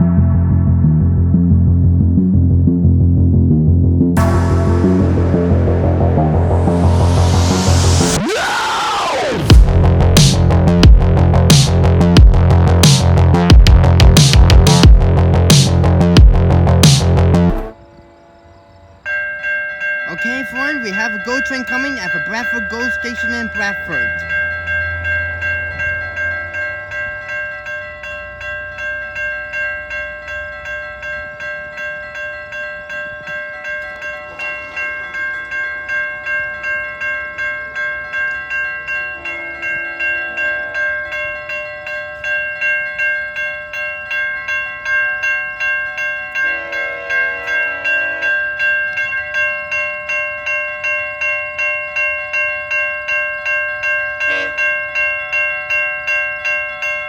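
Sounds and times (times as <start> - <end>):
low chord-like train horn tones: 4.2 - 7.7, 46.4 - 48.6
level crossing bell ringing: 19.1 - 57.0.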